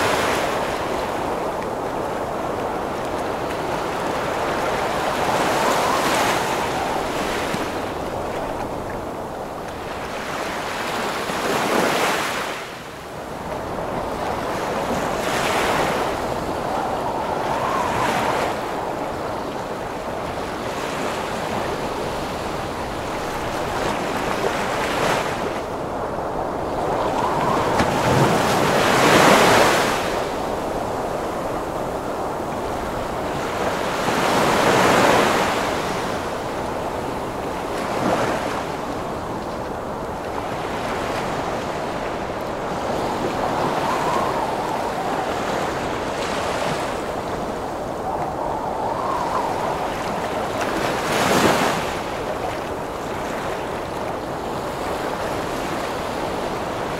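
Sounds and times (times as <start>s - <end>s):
heavy ocean waves breaking: 0.0s - 56.9s
strong wind blowing: 0.0s - 56.9s.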